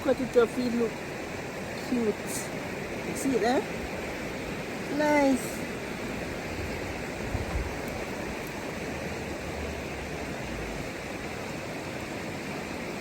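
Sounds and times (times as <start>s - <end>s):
river water flowing: 0.0s - 13.0s
low bumps: 6.6s - 8.6s.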